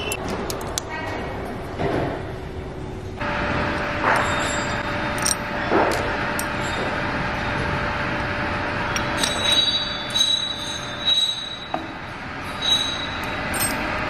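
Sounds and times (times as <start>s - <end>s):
workshop hum: 0.0s - 14.0s
metal parts clinking: 4.2s - 6.8s, 9.0s - 11.7s, 12.6s - 14.0s.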